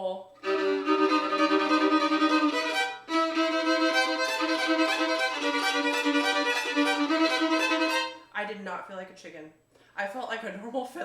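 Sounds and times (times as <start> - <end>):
fiddle bowing a shuffle: 0.4 - 8.3.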